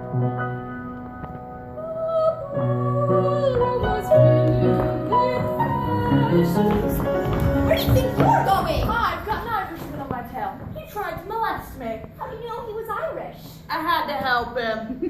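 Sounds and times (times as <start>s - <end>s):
piano chords: 0.0s - 13.5s
woman singing: 1.8s - 9.5s.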